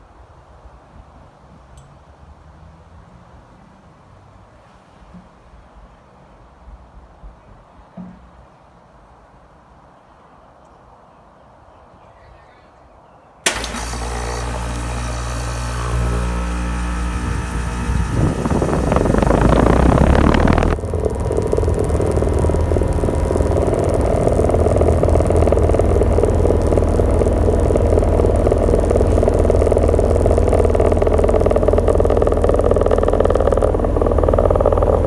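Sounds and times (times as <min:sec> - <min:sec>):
air conditioner unit humming: 0:13.5 - 0:35.0.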